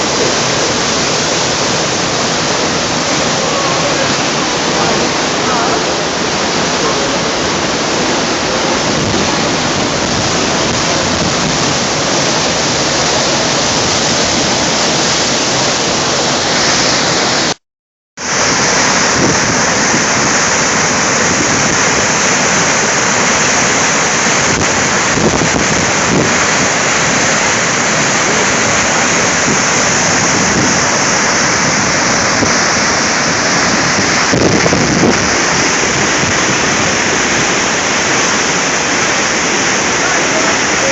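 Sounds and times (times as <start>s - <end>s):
waterfall rushing: 0.0s - 17.6s, 18.2s - 40.9s.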